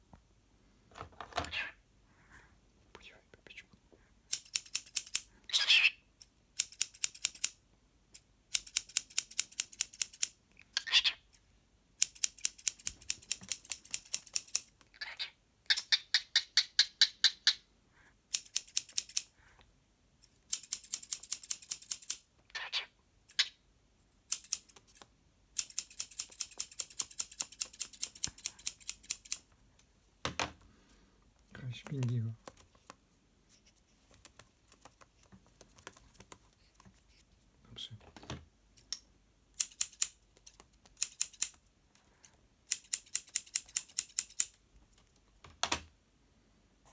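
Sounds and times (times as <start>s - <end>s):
cockatiel squawks: 5.5s - 6.0s, 10.8s - 11.2s, 22.5s - 23.5s
cockatiel clicking: 18.3s - 19.3s, 20.5s - 22.2s, 24.3s - 29.4s, 31.8s - 33.0s, 34.1s - 36.5s, 39.6s - 41.6s, 42.7s - 44.6s.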